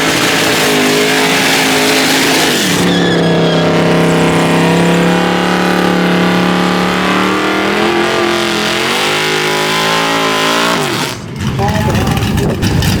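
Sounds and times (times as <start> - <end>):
drag car engine revving: 0.0 - 13.0.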